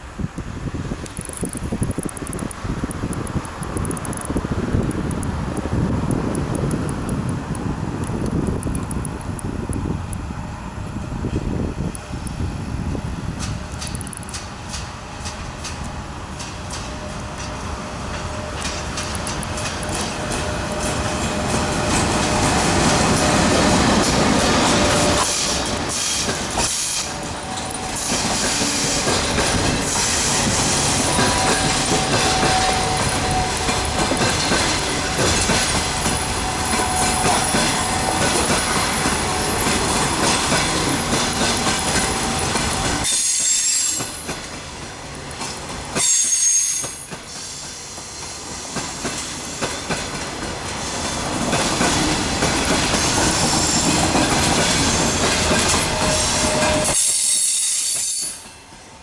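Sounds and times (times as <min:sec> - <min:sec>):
train wheels clattering over rail joints: 0:13.2 - 0:58.6.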